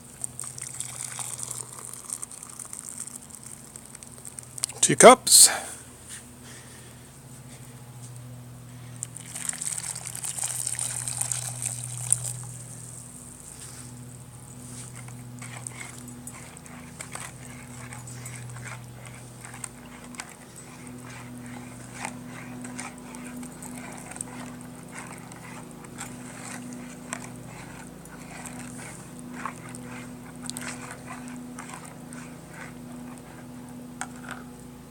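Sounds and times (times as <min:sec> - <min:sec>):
steady low hum: 0:00.0 - 0:34.9
hot water pouring: 0:00.2 - 0:04.5, 0:09.2 - 0:12.3.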